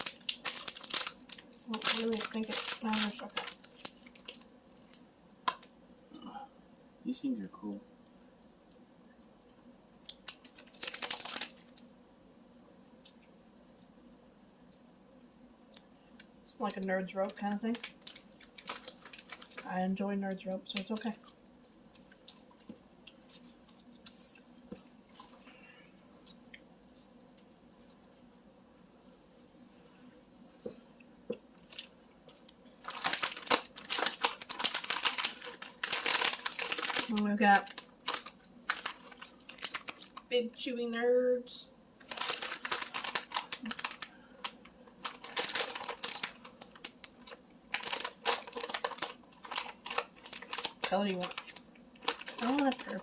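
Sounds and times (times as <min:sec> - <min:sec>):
plastic bag crinkling: 0:00.0 - 0:05.7, 0:10.1 - 0:11.9, 0:16.6 - 0:20.0, 0:20.6 - 0:25.6, 0:31.6 - 0:40.5, 0:42.0 - 0:53.0
snacks being handled and eaten: 0:00.0 - 0:05.8, 0:08.7 - 0:12.0, 0:15.7 - 0:19.7, 0:20.7 - 0:29.7, 0:31.0 - 0:40.3, 0:41.9 - 0:53.0.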